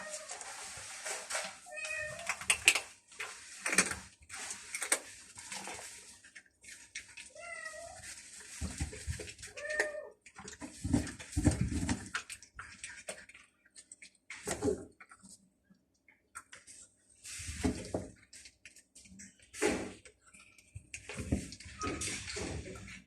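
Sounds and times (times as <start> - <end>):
cats meowing: 0.0 - 0.5, 1.4 - 2.5, 7.2 - 8.4, 9.4 - 10.3.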